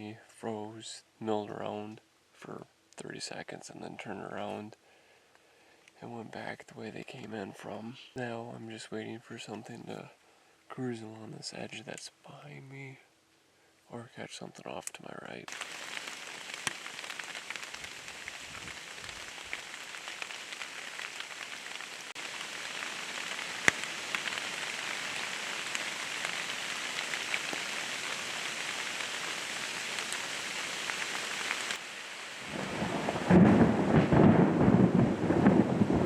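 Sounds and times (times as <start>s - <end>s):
steady rain falling: 15.4s - 36.0s
thunderclap rumble: 32.4s - 36.0s.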